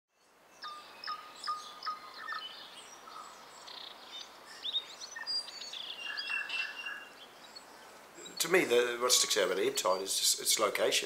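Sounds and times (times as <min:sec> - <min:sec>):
birds singing and chirping: 0:00.1 - 0:11.0
outdoor background hiss: 0:00.1 - 0:11.0.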